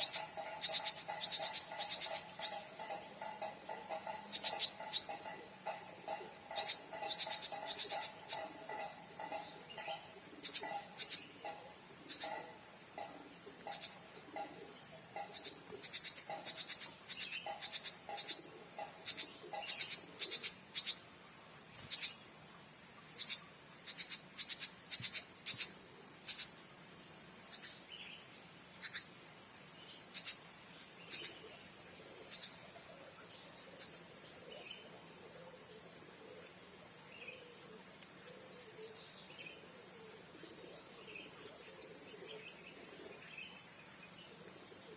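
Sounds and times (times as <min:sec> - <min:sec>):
parrots chirping: 0:00.0 - 0:12.4, 0:15.2 - 0:21.0
insects droning: 0:00.0 - 0:44.9.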